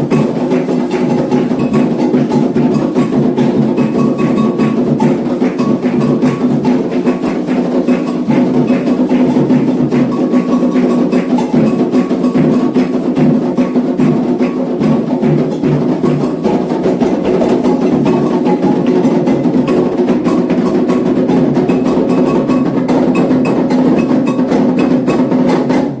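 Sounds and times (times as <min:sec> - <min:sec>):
hand drums playing fast rhythm: 0:00.0 - 0:26.0.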